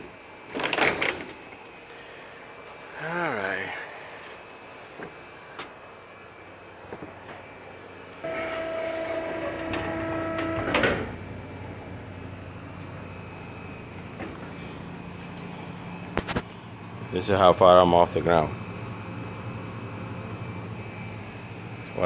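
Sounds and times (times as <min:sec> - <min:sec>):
hydraulic pump whining: 0:08.2 - 0:16.3.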